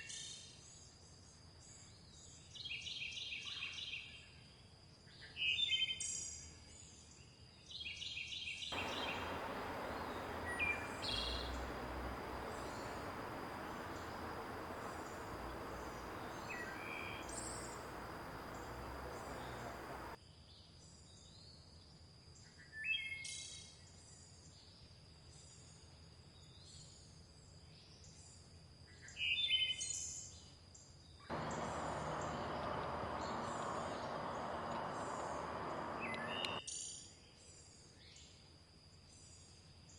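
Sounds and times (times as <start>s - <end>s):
birds chirping: 8.8s - 20.2s, 31.3s - 36.6s
river rushing: 8.8s - 20.2s, 31.3s - 36.6s.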